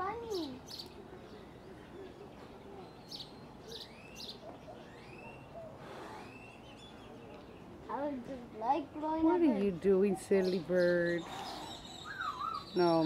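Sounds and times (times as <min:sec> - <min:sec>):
high bird chirps: 0:10.4 - 0:13.0
bird whistles: 0:11.2 - 0:13.0.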